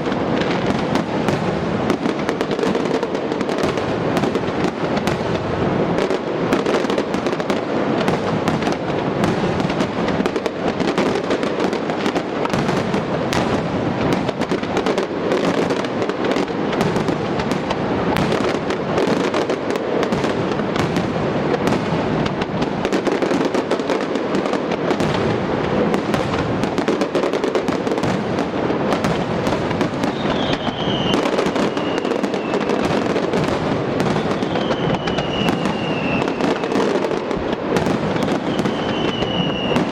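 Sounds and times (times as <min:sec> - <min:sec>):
fireworks crackling and bangs: 0:00.0 - 0:39.9
falling firework whistle: 0:29.4 - 0:39.9.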